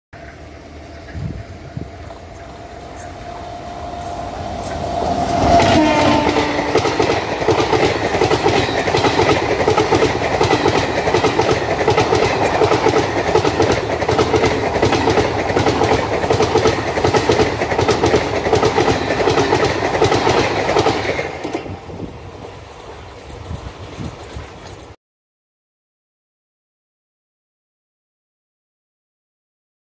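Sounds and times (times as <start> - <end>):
train wheels clickety-clack: 0.2 - 25.0
train horn: 2.6 - 7.2.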